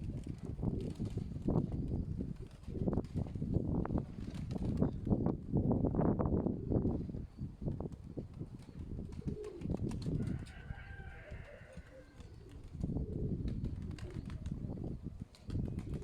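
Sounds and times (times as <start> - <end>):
pigeons cooing: 9.0 - 14.8.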